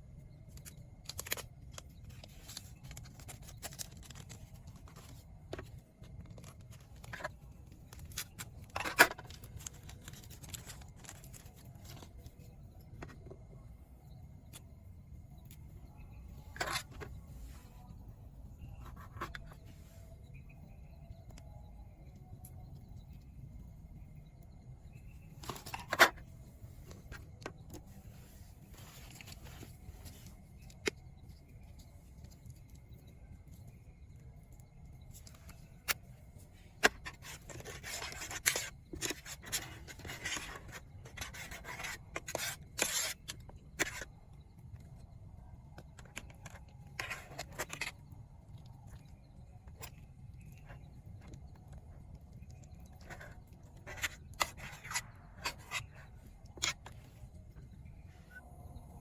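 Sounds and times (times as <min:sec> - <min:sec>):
rustling and scraping handling noise: 0:00.1 - 0:58.5.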